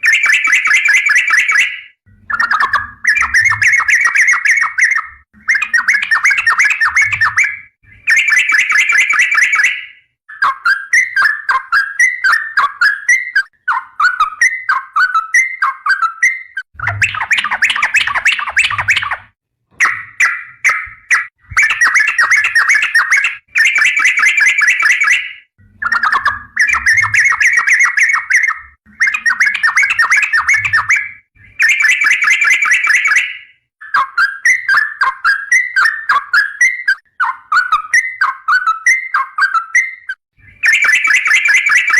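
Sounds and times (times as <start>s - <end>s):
bird singing bubbling notes: 0.0s - 41.9s.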